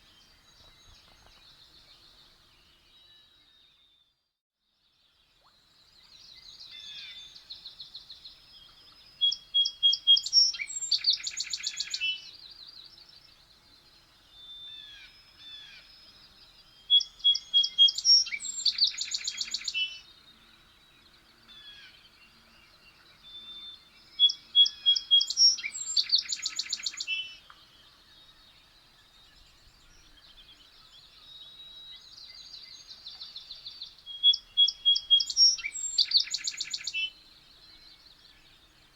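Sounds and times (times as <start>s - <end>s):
songbird trilling: 16.9s - 20.0s, 24.2s - 27.5s, 33.8s - 37.1s
soft bird twittering: 21.4s - 38.9s.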